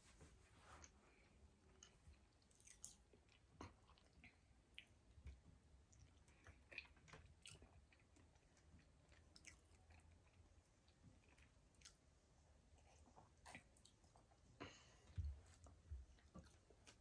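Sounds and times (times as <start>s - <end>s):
close-up chewing: 1.7s - 12.0s.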